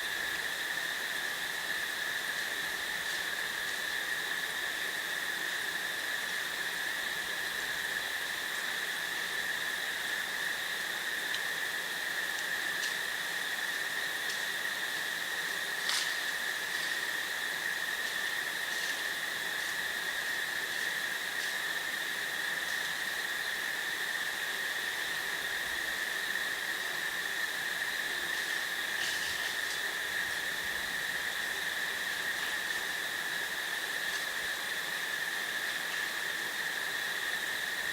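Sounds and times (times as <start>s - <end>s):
crickets chirping: 0.0s - 37.9s
faint ticks: 11.3s - 11.5s.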